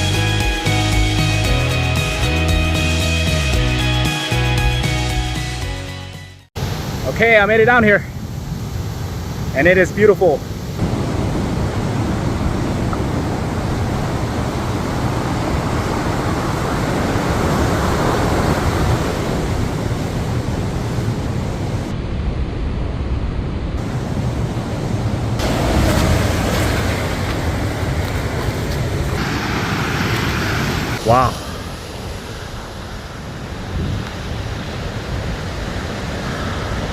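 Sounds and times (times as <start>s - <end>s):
ocean surf washing in: 6.6s - 36.9s
wind buffeting microphone: 10.6s - 36.9s.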